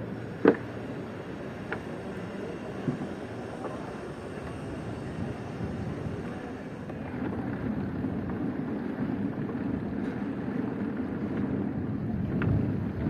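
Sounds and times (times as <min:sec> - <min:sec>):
wind on microphone: 0:02.6 - 0:13.0.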